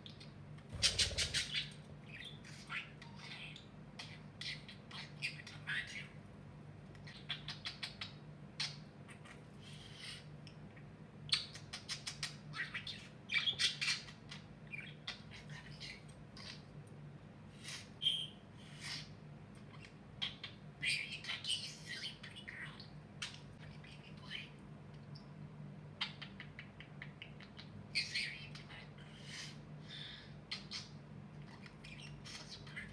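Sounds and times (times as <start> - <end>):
budgerigar chattering and chirping: 0.8 - 3.2.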